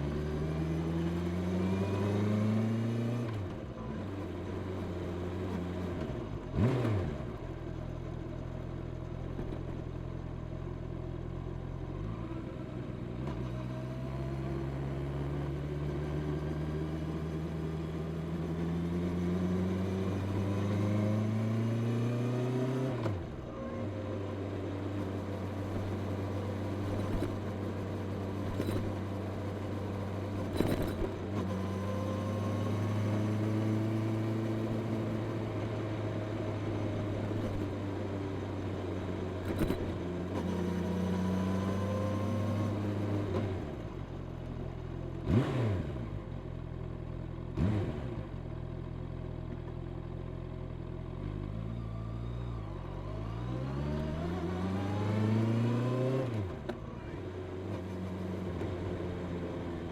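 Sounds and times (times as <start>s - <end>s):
motorcycle engine revving: 0.0s - 7.5s, 16.2s - 44.1s, 45.1s - 46.7s, 47.4s - 48.7s, 52.7s - 59.9s.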